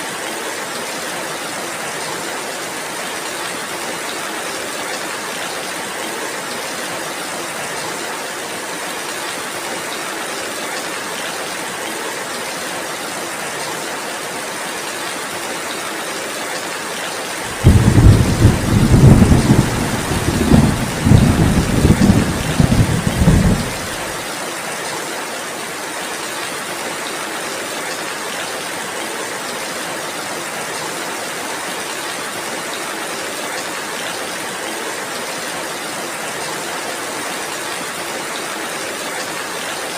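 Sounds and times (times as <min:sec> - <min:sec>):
heavy rain hissing: 0:17.3 - 0:24.4
thunder rumbling: 0:17.5 - 0:24.2.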